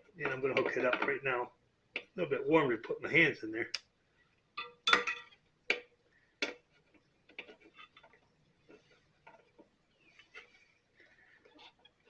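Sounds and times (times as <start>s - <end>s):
soft ticks and rustles: 5.7s - 12.0s.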